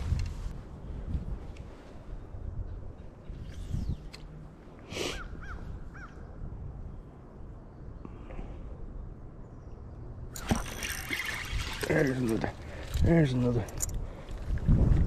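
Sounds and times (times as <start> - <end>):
wind rumble on microphone: 0.0 - 4.4, 5.2 - 7.6, 10.6 - 15.0.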